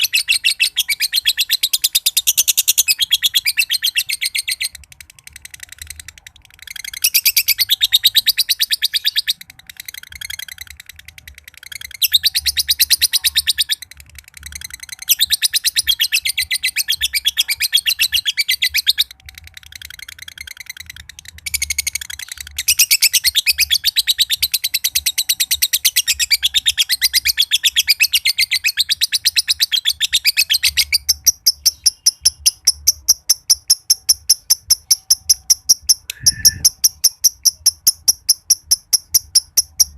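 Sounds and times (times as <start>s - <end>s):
lovebird chattering: 0.0s - 39.9s
sharp high bird notes: 30.8s - 39.9s.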